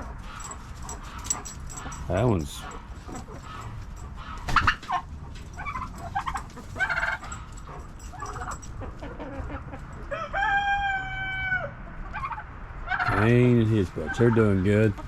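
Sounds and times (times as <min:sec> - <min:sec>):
chickens clucking: 0:00.0 - 0:10.2, 0:12.0 - 0:15.0
rooster crowing: 0:10.1 - 0:11.8.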